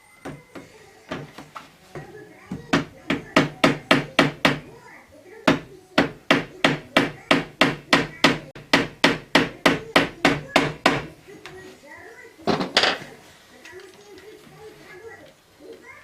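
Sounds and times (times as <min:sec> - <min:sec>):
hammer tapping on wood: 0:00.2 - 0:04.7, 0:05.5 - 0:11.2.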